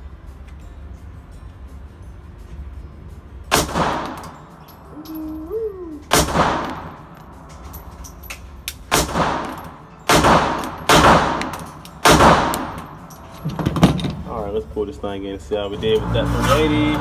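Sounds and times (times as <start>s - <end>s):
pistol shots with ringing echo: 3.5s - 5.2s, 6.0s - 13.4s.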